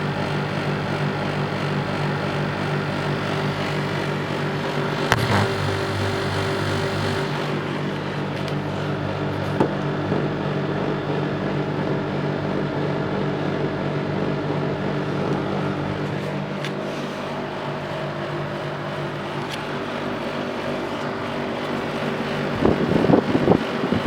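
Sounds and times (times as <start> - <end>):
air conditioner humming: 1.7 - 24.0.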